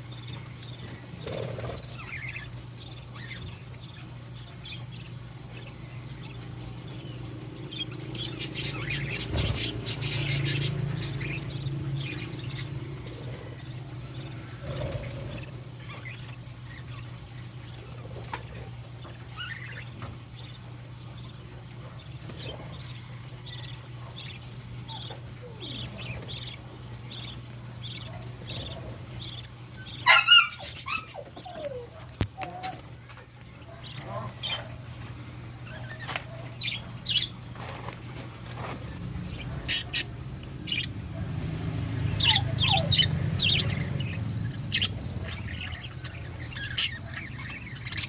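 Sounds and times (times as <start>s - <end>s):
steady low hum: 0.0s - 48.0s
budgerigars chirping: 0.1s - 17.1s, 21.9s - 31.7s, 35.6s - 37.4s, 38.9s - 48.0s.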